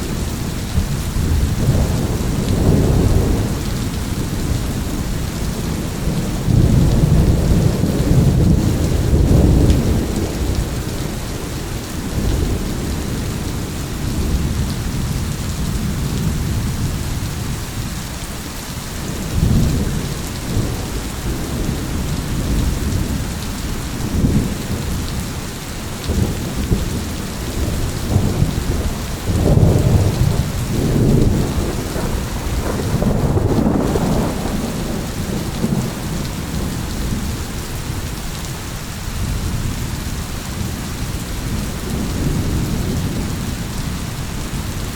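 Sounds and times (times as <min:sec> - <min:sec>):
low rolling thunder: 0:00.0 - 0:17.8, 0:19.0 - 0:44.9
heavy rain: 0:00.0 - 0:44.9.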